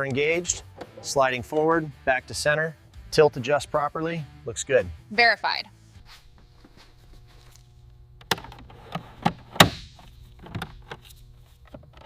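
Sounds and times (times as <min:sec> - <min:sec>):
sharp knocks and clunks: 0:08.2 - 0:11.0.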